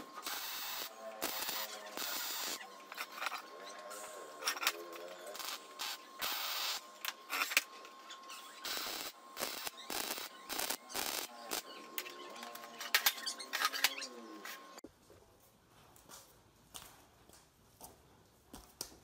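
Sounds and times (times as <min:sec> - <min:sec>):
small parts and tools rattling: 0:00.2 - 0:14.7.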